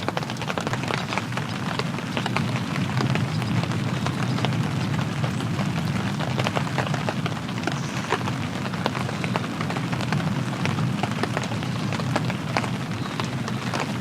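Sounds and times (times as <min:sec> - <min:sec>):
raindrops ticking: 0:00.0 - 0:14.0
steady rain falling: 0:00.0 - 0:14.0.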